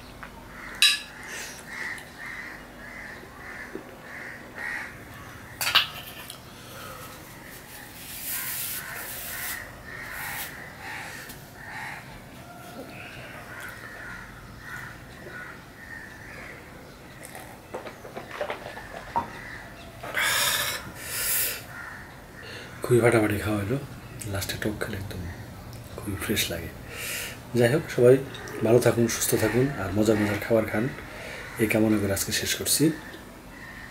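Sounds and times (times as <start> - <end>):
eating noises: 17.2 - 19.1.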